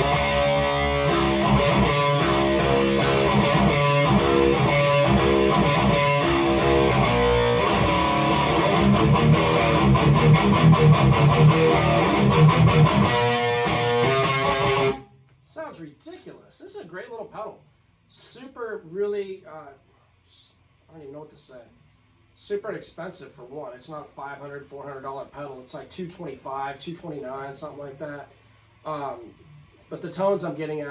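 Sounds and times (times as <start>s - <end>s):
distorted electric guitar riffs: 0.0s - 15.2s.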